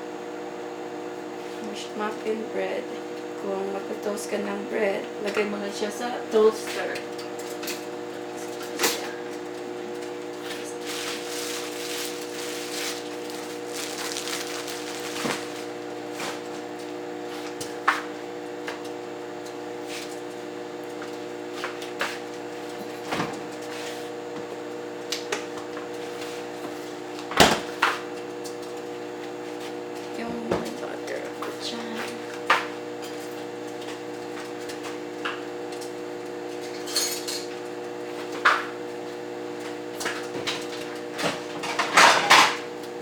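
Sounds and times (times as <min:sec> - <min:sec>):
microwave oven humming: 0:00.0 - 0:43.0.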